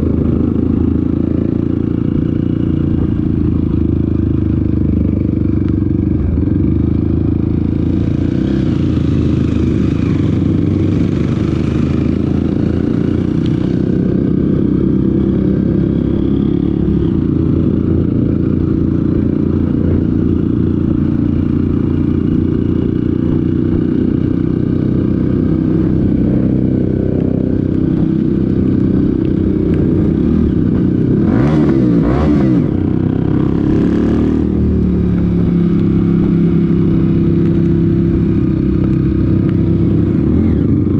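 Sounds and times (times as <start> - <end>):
off-road vehicle engine running: 0.0 - 40.9.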